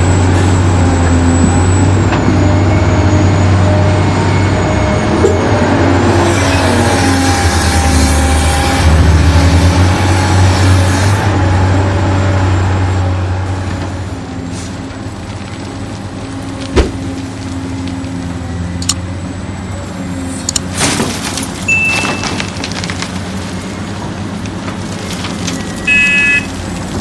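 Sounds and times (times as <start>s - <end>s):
brief high beep: 21.7s - 22.2s, 25.9s - 26.5s.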